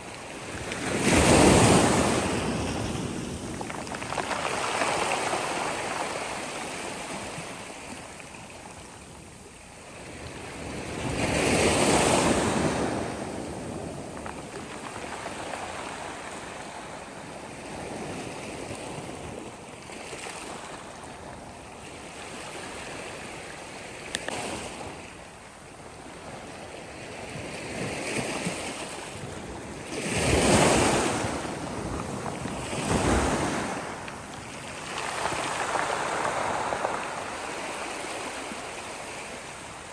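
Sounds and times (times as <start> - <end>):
sea waves breaking on shore: 0.0 - 8.9, 26.0 - 39.9.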